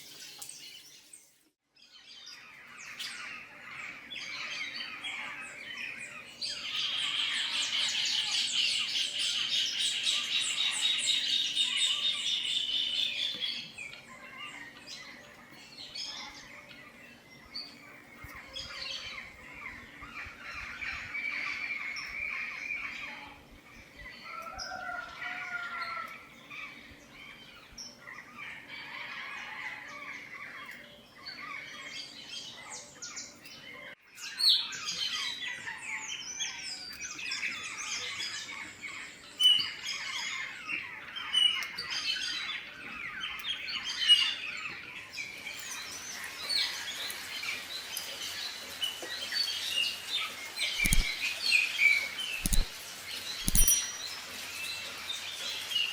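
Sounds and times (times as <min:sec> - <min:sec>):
small birds chirping: 0:00.0 - 0:55.9.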